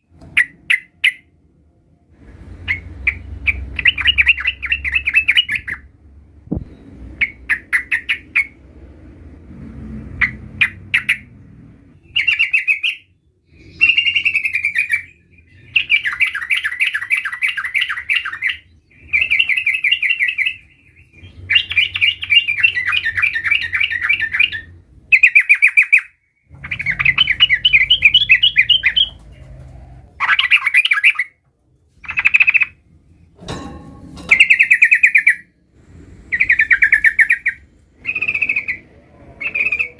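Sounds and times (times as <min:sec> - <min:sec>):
bird singing trilled phrases: 0:02.6 - 0:05.9, 0:06.5 - 0:08.6, 0:12.0 - 0:29.4, 0:30.2 - 0:31.4, 0:32.0 - 0:32.8, 0:34.3 - 0:35.6, 0:36.3 - 0:39.9.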